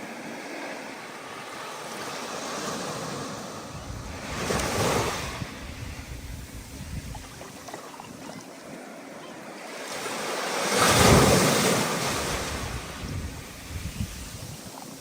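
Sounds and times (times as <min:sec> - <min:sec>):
ocean wave breaking: 0:00.0 - 0:15.0
wind buffeting microphone: 0:03.0 - 0:08.8, 0:10.8 - 0:15.0.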